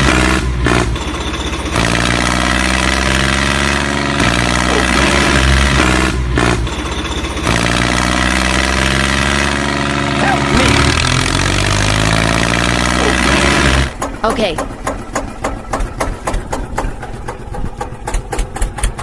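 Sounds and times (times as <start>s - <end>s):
tractor diesel engine idling: 0.8s - 2.4s, 4.6s - 8.3s, 12.8s - 19.0s.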